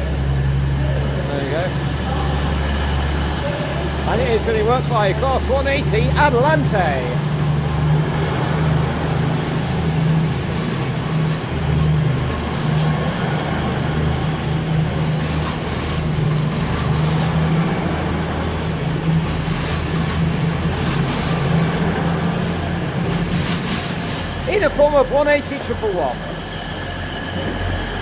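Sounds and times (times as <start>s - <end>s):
train diesel engine throbbing: 0.0s - 28.0s.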